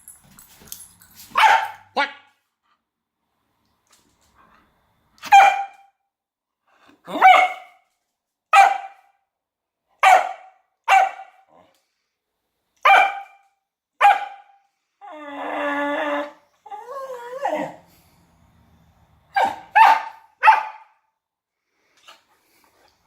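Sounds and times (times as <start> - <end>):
dog barking: 1.4 - 2.0, 5.2 - 5.9, 7.1 - 7.8, 8.5 - 9.2, 10.0 - 11.5, 12.8 - 13.4, 14.0 - 14.6, 19.3 - 21.0.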